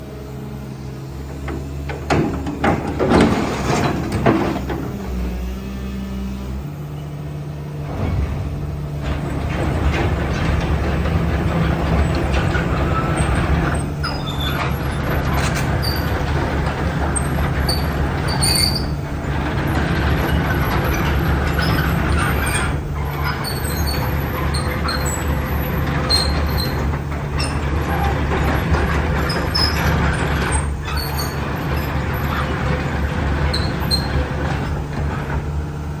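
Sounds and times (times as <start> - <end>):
faint high squeaks: 17.6 - 19.0, 33.5 - 34.2.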